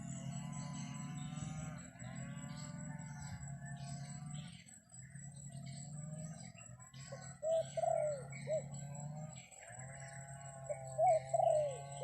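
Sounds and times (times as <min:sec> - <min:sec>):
dove cooing: 0:07.2 - 0:09.0, 0:10.6 - 0:12.0.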